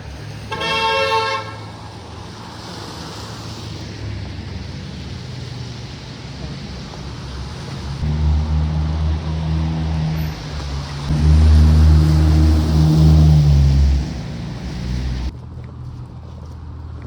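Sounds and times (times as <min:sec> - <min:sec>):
large engine humming: 0:06.4 - 0:15.4.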